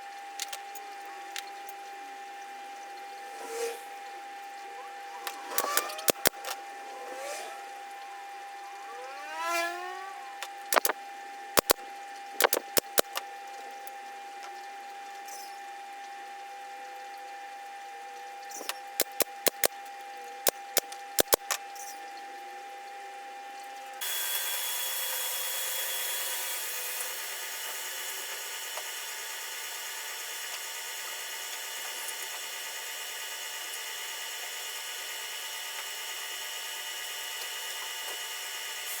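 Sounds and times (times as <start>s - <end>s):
steady hum with high tone: 0.0s - 21.9s.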